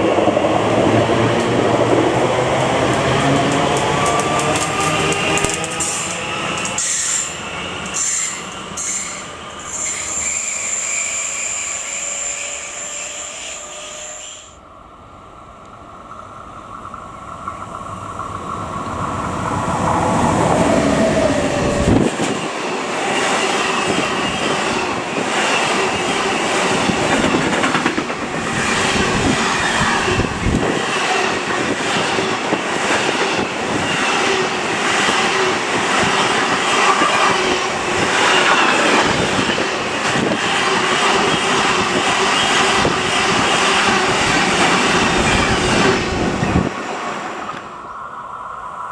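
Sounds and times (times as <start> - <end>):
train wheel squeal: 4.2 - 14.6, 28.4 - 46.7.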